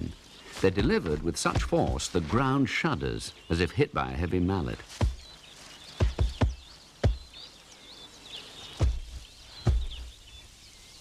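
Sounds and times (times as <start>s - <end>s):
faint birdsong chirps: 0.0s - 11.0s
bird stamping on snake thuds: 0.5s - 2.6s, 4.8s - 7.5s, 8.7s - 10.2s.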